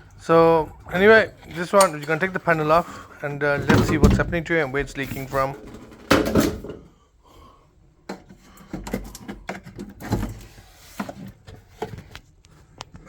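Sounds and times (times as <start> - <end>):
heavy thumps: 3.5 - 6.9.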